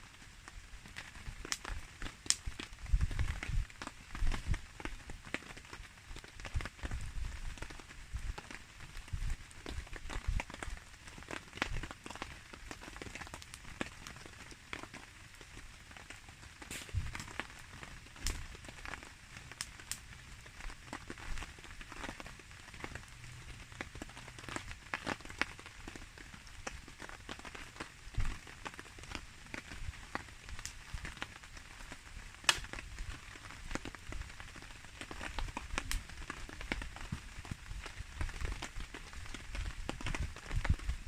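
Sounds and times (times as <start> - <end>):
campfire crackling and popping: 0.0 - 41.0
rain falling: 0.0 - 41.0.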